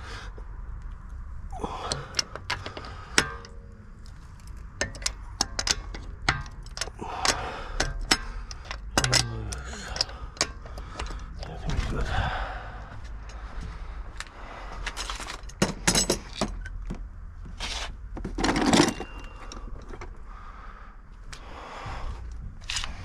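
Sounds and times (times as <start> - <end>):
metal car parts clinking: 1.6 - 11.9, 12.8 - 20.2.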